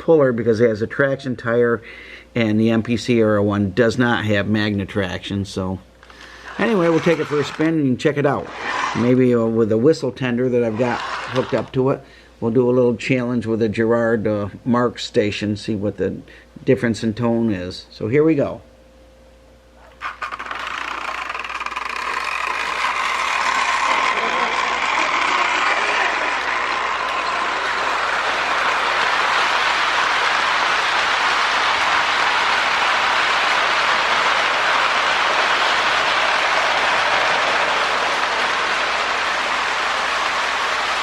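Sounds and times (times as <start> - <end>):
toy train whirring rumble: 6.0 - 7.8, 8.4 - 9.3, 10.7 - 11.8, 20.0 - 41.0.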